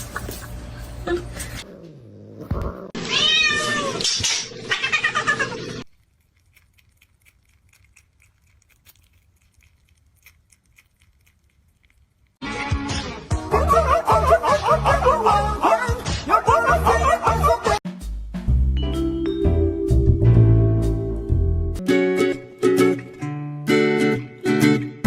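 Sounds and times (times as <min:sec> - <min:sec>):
cat meowing: 0:03.0 - 0:05.6.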